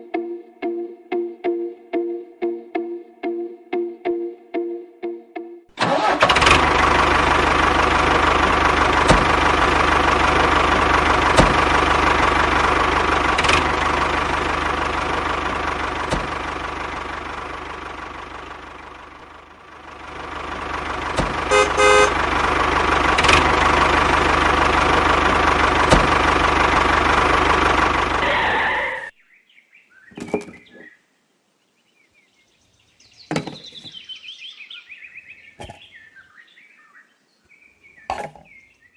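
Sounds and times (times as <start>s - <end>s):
engine running: 5.8s - 29.1s
short horn-like beep: 21.5s - 22.2s.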